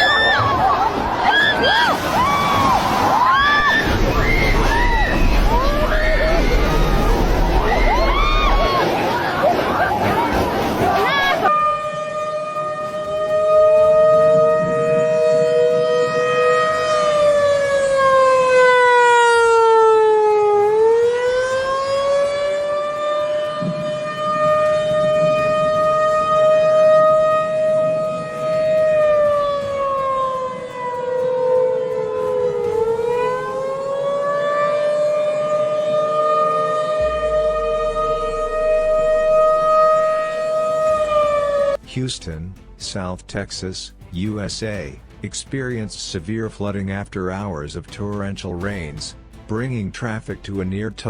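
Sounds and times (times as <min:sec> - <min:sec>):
two-tone siren wailing: 0:00.0 - 0:10.4, 0:11.0 - 0:41.8.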